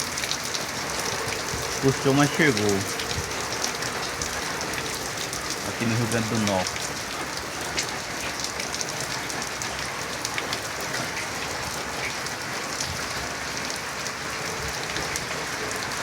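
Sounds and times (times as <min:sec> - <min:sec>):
rain pattering: 0:00.0 - 0:16.0.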